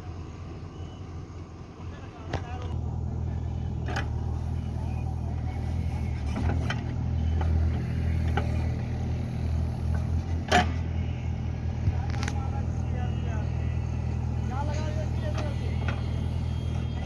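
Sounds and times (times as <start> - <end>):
diesel digger engine running: 0.0 - 17.0.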